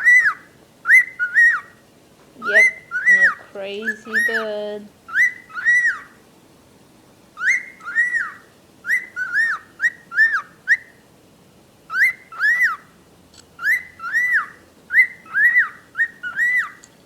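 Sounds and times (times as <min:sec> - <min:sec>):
pet bird whistling: 0:00.0 - 0:01.8, 0:02.4 - 0:06.2, 0:07.4 - 0:11.0, 0:11.9 - 0:12.9, 0:13.6 - 0:16.9.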